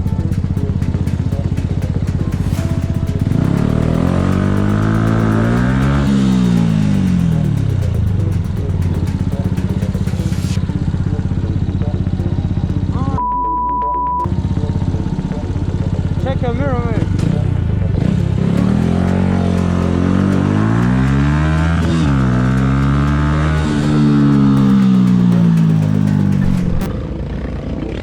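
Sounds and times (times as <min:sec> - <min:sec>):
passing engine rising and falling: 0:00.0 - 0:13.0, 0:14.2 - 0:28.0
motorcycle engine running: 0:00.0 - 0:13.2, 0:14.3 - 0:28.0
censor beep: 0:11.0 - 0:16.2.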